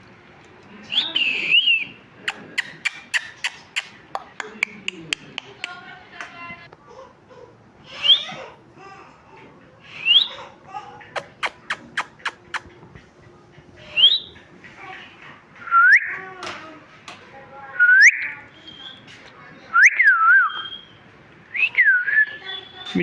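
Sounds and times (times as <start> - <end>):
parrot whistling: 19.8 - 22.9.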